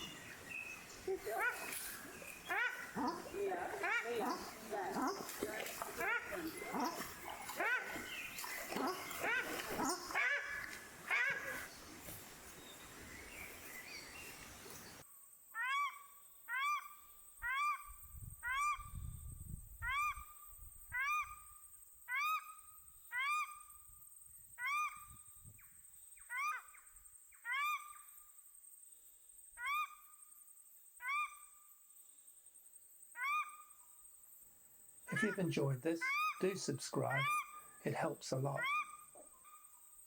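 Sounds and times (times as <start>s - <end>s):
faint outdoor ambience: 0.0s - 15.6s, 16.2s - 40.0s
duck honking calls: 1.1s - 11.7s, 35.1s - 39.0s.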